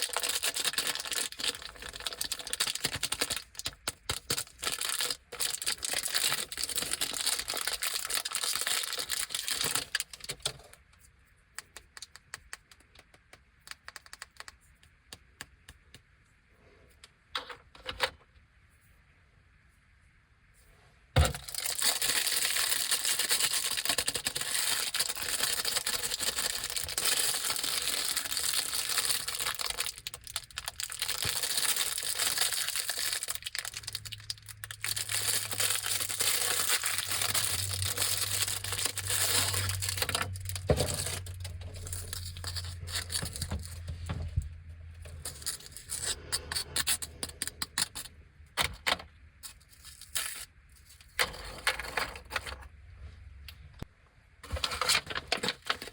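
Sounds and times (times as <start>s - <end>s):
plastic packaging crinkling: 0.0s - 10.8s, 21.2s - 43.9s, 45.0s - 48.1s, 49.4s - 52.5s, 54.4s - 55.9s.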